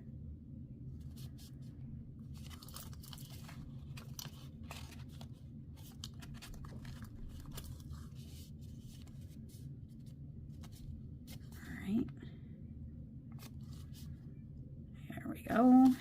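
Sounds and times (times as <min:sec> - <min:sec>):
paper rustling and crinkling: 0:01.0 - 0:11.7, 0:13.3 - 0:14.2, 0:15.6 - 0:16.0.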